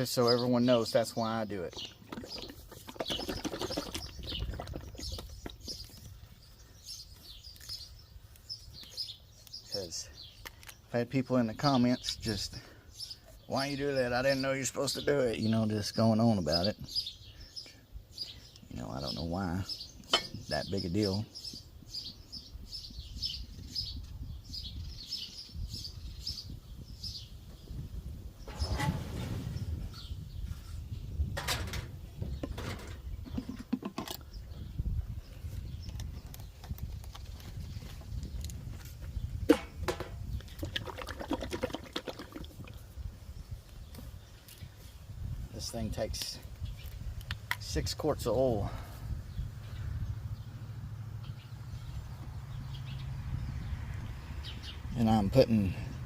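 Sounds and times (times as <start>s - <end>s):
small birds chirping: 0.0s - 56.0s
small bird chirping: 1.6s - 11.0s
oil sloshing in plastic jug: 1.7s - 5.8s, 39.5s - 42.8s.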